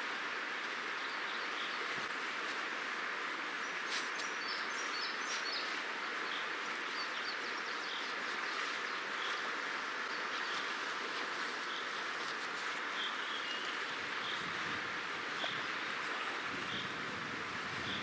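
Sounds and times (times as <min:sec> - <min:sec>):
outdoor background hiss: 0:00.0 - 0:18.0
small birds chirping: 0:03.6 - 0:17.1.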